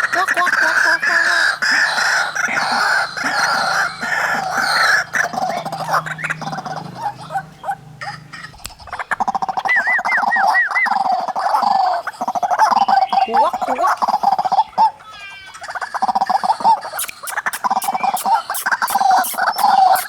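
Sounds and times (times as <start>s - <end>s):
waterhens calling: 0.0s - 20.0s
rising and falling bird whistles: 9.6s - 11.2s, 16.9s - 20.0s.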